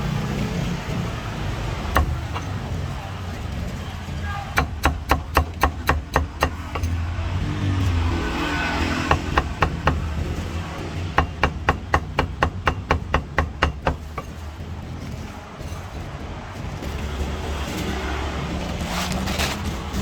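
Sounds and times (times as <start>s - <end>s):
low traffic rumble: 0.0s - 20.0s
cleaver chopping meat: 1.8s - 3.0s, 4.3s - 15.1s.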